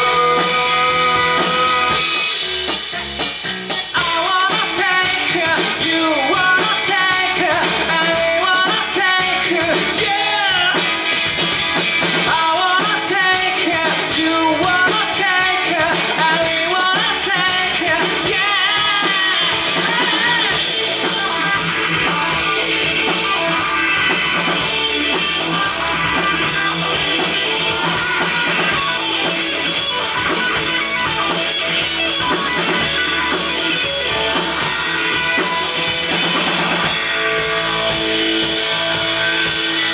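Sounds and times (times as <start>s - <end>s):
live rock band playing: 0.0s - 39.9s
melodic guitar lead line: 0.0s - 39.9s.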